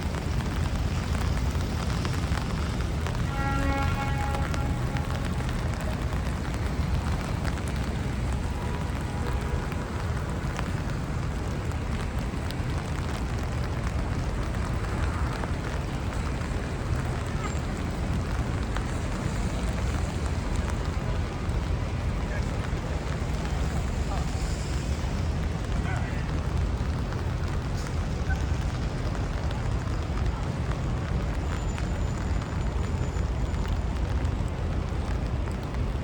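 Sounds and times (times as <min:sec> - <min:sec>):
low traffic rumble: 0:00.0 - 0:36.0
rain on street: 0:00.0 - 0:36.0.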